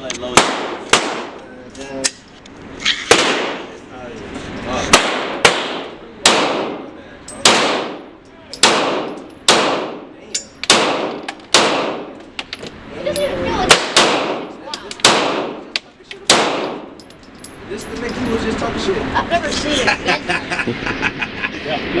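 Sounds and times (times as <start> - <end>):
gunshots with echoing tail: 0.4 - 1.4, 3.1 - 3.7, 4.9 - 10.1, 10.7 - 12.2, 13.7 - 15.7, 16.3 - 17.0.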